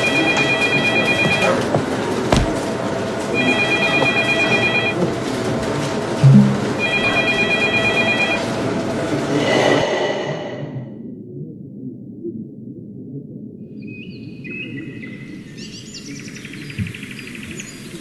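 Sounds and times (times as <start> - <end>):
electronic telephone ringing tone: 0.0 - 1.6, 3.4 - 5.0, 6.8 - 8.5
short thump: 2.3 - 2.7.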